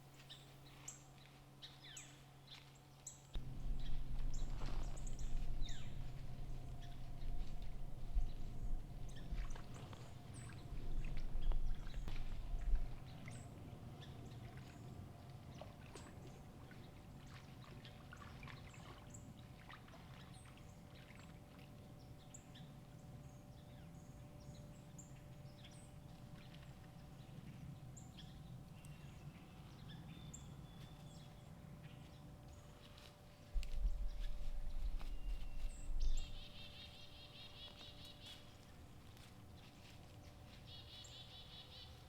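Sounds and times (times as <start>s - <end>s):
faint steady hum: 0.0s - 42.0s
faint rustles and ticks: 30.8s - 36.4s, 37.6s - 42.0s.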